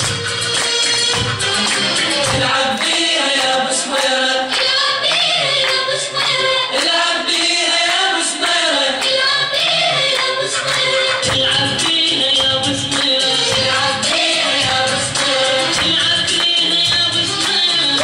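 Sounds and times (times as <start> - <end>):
choir singing: 2.4 - 18.0
backing music with low end: 9.0 - 18.0.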